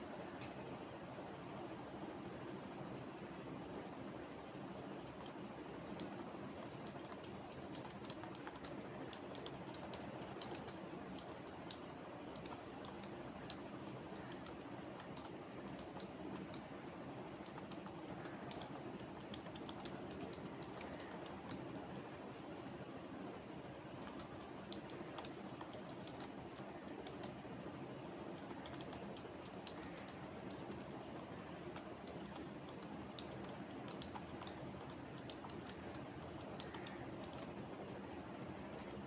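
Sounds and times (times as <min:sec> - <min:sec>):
steady background noise: 0:00.0 - 0:39.0
computer keyboard typing: 0:05.0 - 0:16.7, 0:17.4 - 0:22.1, 0:24.0 - 0:27.4, 0:28.3 - 0:37.8, 0:38.6 - 0:39.0.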